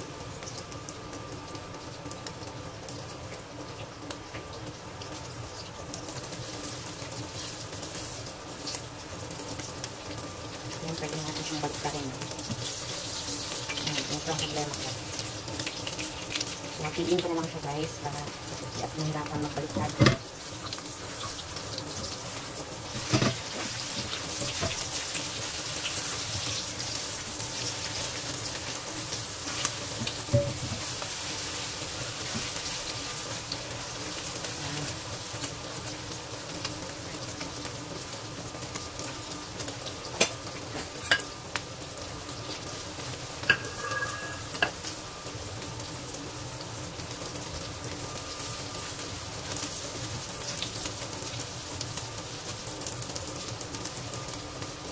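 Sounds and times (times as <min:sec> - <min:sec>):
food sizzling in hot oil: 0:00.0 - 0:54.9
spatula scraping and knocking pan: 0:22.9 - 0:24.9, 0:43.4 - 0:44.8.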